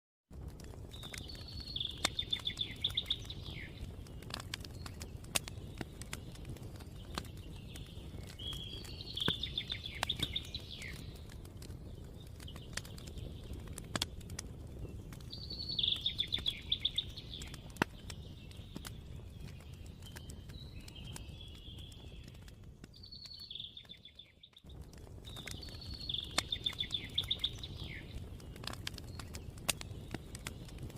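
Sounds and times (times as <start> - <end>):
fire crackling: 0.3 - 30.9
songbird trilling: 1.6 - 3.8, 15.4 - 17.5.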